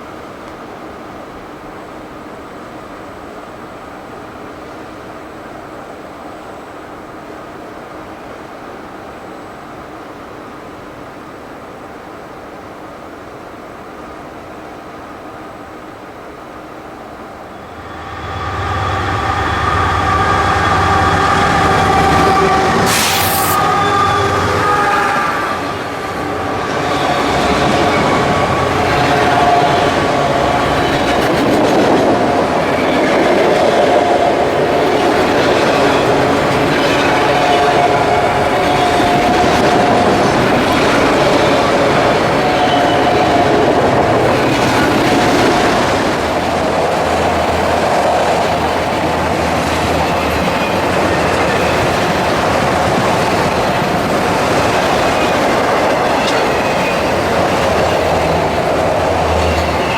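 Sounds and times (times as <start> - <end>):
freight train rumbling past: 13.1 - 59.9.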